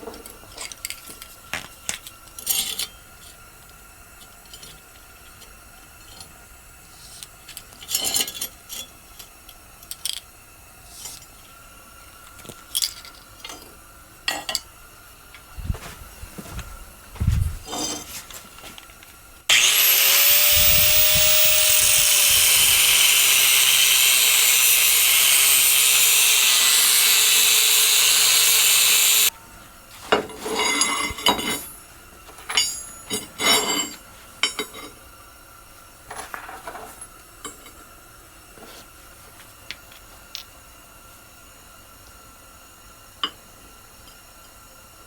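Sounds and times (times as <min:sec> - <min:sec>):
power tool cutting steel: 0:19.5 - 0:29.3.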